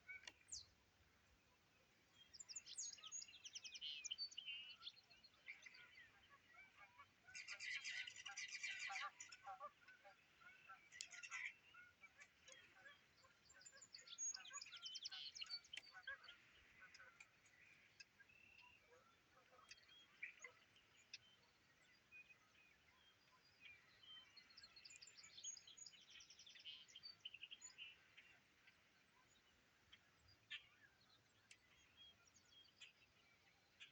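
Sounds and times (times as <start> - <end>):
faint songbirds singing: 0.0 - 33.9.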